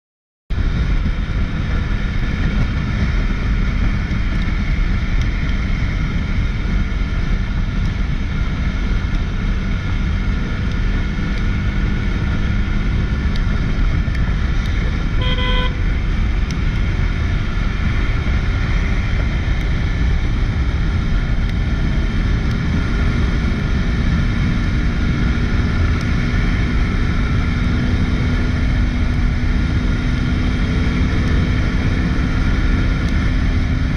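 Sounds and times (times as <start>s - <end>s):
motorcycle engine hum: 0.5s - 33.9s
wind rushing on microphone: 0.5s - 33.9s
motorcycle horn toot: 15.1s - 15.9s.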